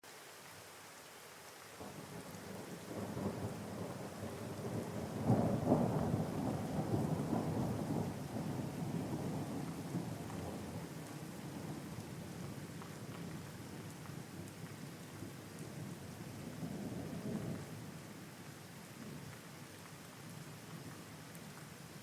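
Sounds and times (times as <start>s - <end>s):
rain falling: 0.0s - 22.0s
rolling thunder: 1.8s - 11.9s.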